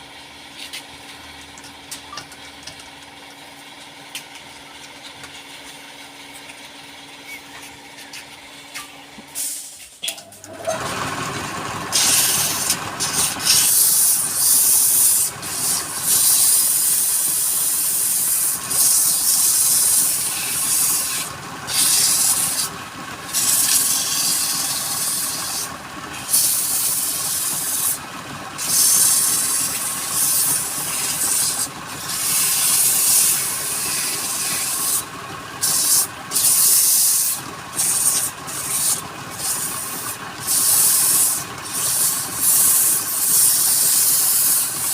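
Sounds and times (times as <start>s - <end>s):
tool scratching wood on lathe: 10.5s - 44.9s.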